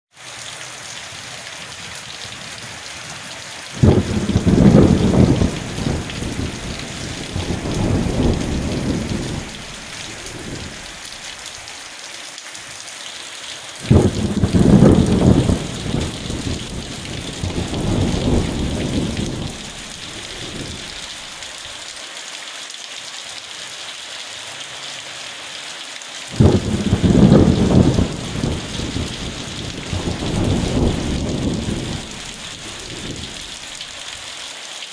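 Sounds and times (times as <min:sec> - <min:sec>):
rain hissing: 0:00.2 - 0:22.1, 0:26.2 - 0:34.9
thunder rolling: 0:02.1 - 0:11.2, 0:13.8 - 0:21.4, 0:26.3 - 0:34.0.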